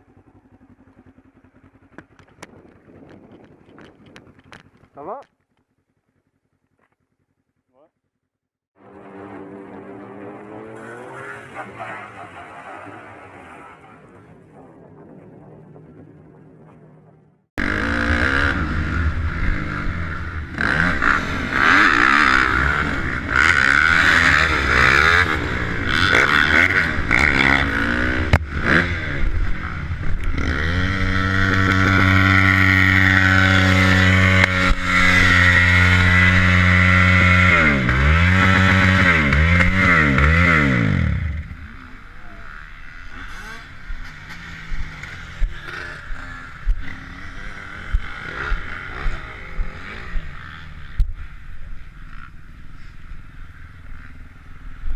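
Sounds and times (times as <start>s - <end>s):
motorcycle engine through gear changes: 9.0s - 13.2s, 17.6s - 52.4s.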